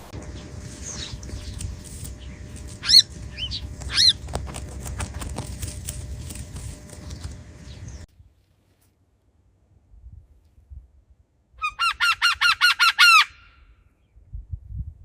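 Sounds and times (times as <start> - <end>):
low rumble: 0.0 - 8.1
bird calling high short calls: 2.2 - 4.3.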